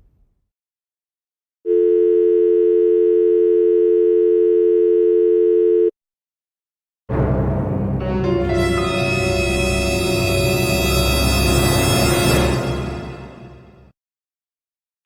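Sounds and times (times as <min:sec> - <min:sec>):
telephone dial tone: 0:01.7 - 0:05.9.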